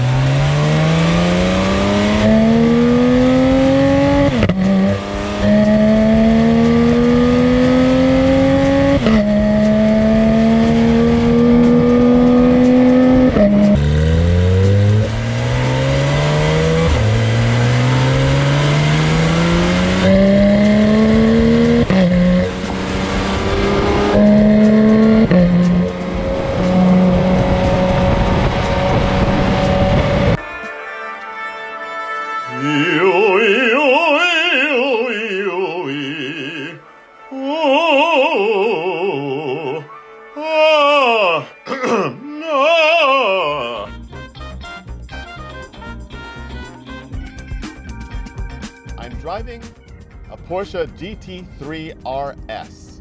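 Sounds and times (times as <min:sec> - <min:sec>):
car engine accelerating hard: 0:00.0 - 0:30.4.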